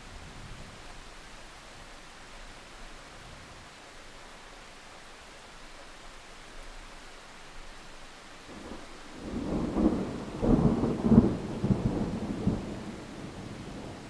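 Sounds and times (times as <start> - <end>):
rain hissing: 0.0 - 14.0
thunder rumbling: 8.5 - 14.0.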